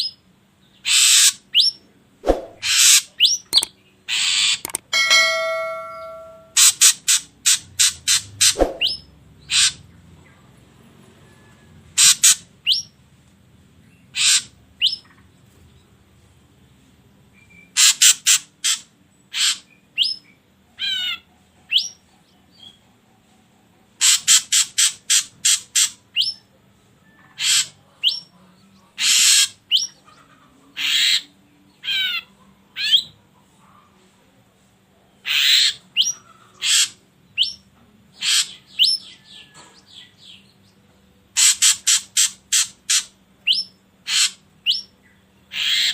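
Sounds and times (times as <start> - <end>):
bird harsh scratchy calls: 0.8 - 1.4, 2.2 - 9.8, 12.0 - 12.8, 14.1 - 15.0, 17.8 - 19.7, 24.0 - 26.0, 27.4 - 27.8, 29.0 - 29.9, 35.2 - 37.0, 38.2 - 38.6, 41.4 - 44.8, 45.5 - 45.9.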